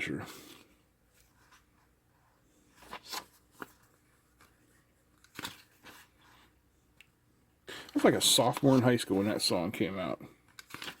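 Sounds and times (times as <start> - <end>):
paper pages rustling: 0.3 - 6.5, 7.9 - 9.5, 10.4 - 11.0.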